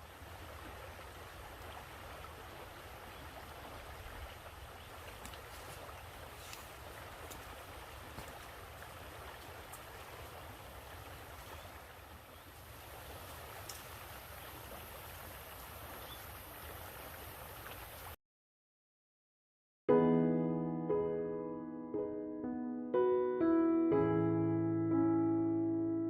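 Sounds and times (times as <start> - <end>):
stream flowing: 0.0 - 18.2.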